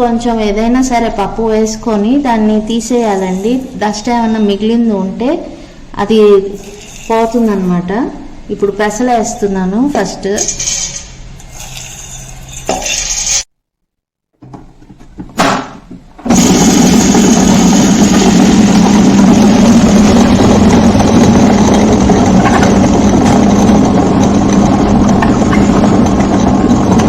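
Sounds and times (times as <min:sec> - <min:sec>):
wet grinder motor grinding: 0:16.3 - 0:27.0.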